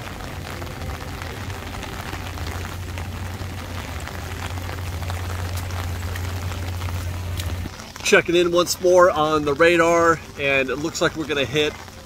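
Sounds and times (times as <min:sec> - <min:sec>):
low hum: 0:00.0 - 0:07.7
heavy rain on paving: 0:00.0 - 0:12.0.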